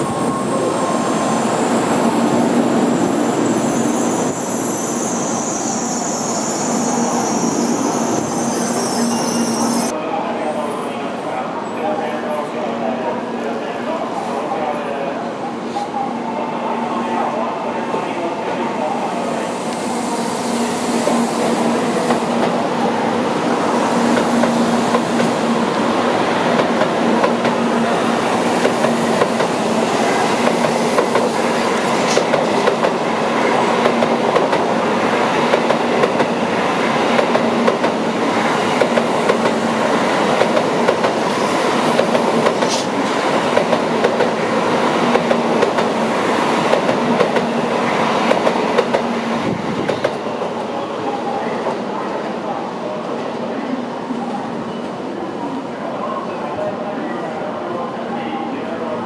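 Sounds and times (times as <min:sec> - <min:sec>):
train rolling past: 0:00.0 - 0:10.2, 0:16.7 - 0:52.0.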